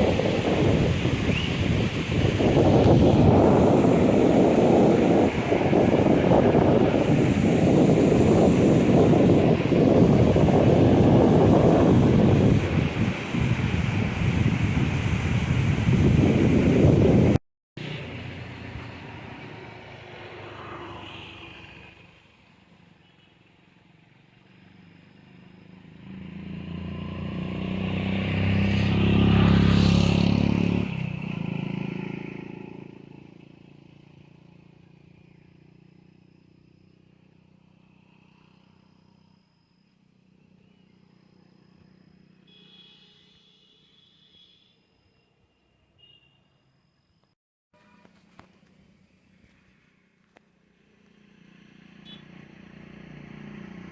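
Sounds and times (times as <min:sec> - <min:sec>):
motor vehicle passing by: 0:17.8 - 0:22.3, 0:24.1 - 0:36.6, 0:49.5 - 0:53.9.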